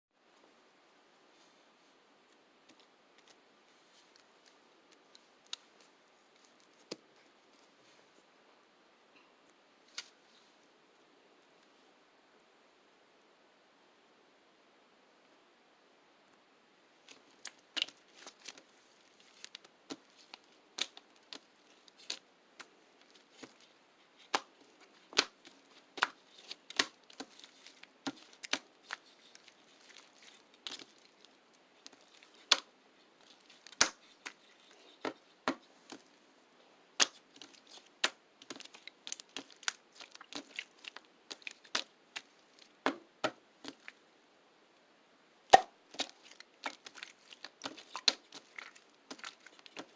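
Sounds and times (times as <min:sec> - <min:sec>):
faint crinkling: 0:01.2 - 0:08.4, 0:16.9 - 0:44.0, 0:45.7 - 0:49.9
crackles of crumpling by hand: 0:17.1 - 0:35.2, 0:37.0 - 0:42.8, 0:45.9 - 0:49.9.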